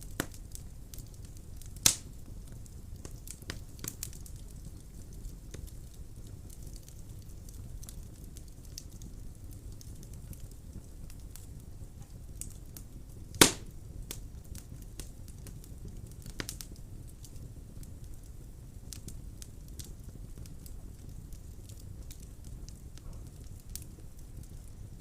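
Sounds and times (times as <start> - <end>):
fire crackling: 0.0 - 25.0
fire flames rumbling: 0.0 - 25.0
loud wood pop: 13.4 - 13.7.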